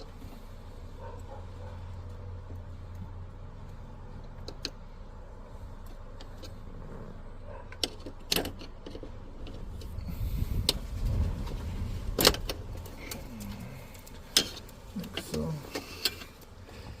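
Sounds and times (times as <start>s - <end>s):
sharp clicks of parts handled: 12.1s - 16.6s.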